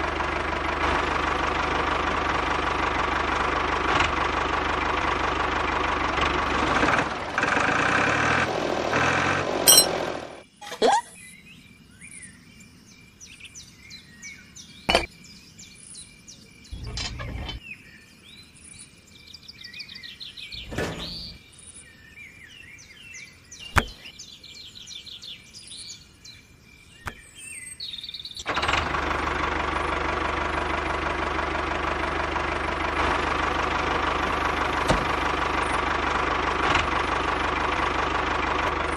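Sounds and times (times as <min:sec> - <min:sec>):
small diesel engine running: 0:00.0 - 0:10.4, 0:16.7 - 0:17.6, 0:20.5 - 0:21.4, 0:28.4 - 0:38.9
birds chirping: 0:09.7 - 0:28.7.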